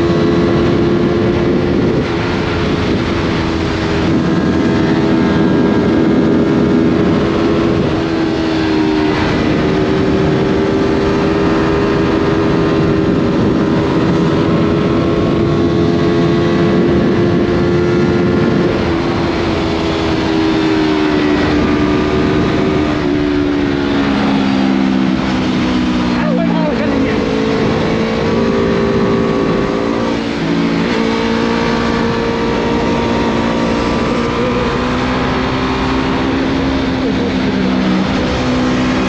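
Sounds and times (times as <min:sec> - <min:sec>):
motorcycle engine running: 0:00.0 - 0:39.0
road and wind noise: 0:00.0 - 0:39.0.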